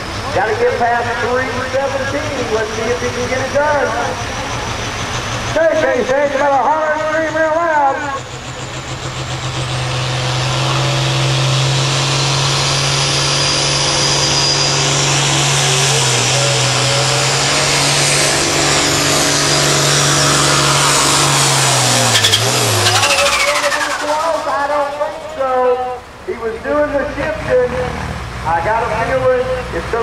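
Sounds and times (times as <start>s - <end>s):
tractor engine running under load: 0.0s - 27.4s.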